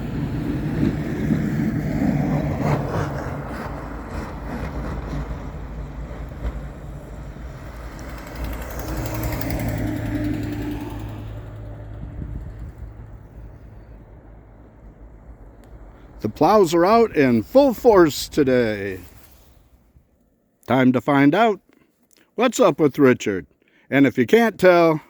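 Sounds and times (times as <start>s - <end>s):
snowplow truck engine driving by: 0.0s - 19.4s.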